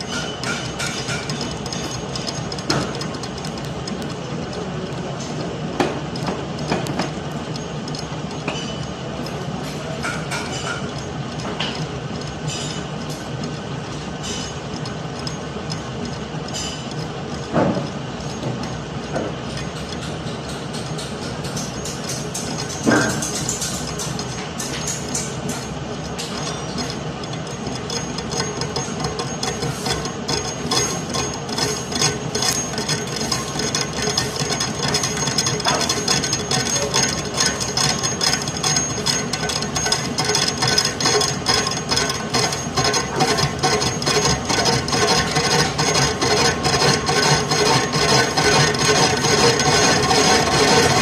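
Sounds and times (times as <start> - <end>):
hammer tapping on metal: 8.5 - 8.9.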